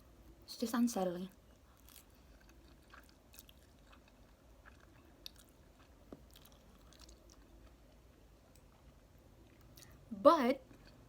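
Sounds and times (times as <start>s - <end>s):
low room hum: 0.0s - 11.0s
faint chewing: 1.3s - 10.0s.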